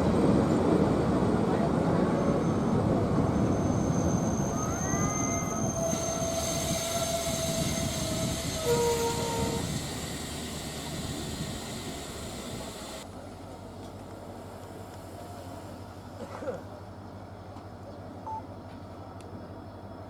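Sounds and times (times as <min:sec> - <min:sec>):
diesel train rumbling along track: 0:00.0 - 0:20.0
brief tone: 0:18.2 - 0:18.5.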